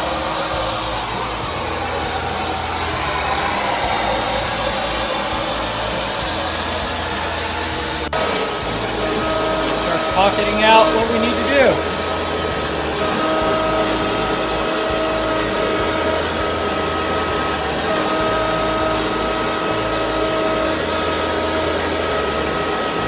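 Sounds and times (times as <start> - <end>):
low machine hum shifting pitch: 0.0 - 23.0
router spinning with steady whine: 0.0 - 23.0
shop vacuum rushing: 0.0 - 23.0.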